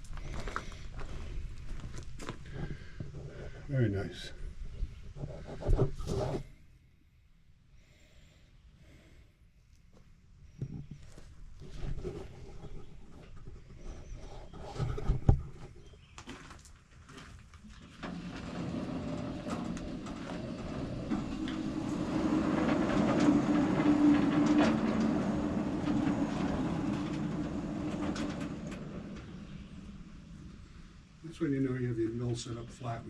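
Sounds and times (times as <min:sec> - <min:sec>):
knocks and clatter: 0:14.7 - 0:30.0
bandsaw mill engine and blade: 0:18.9 - 0:28.9.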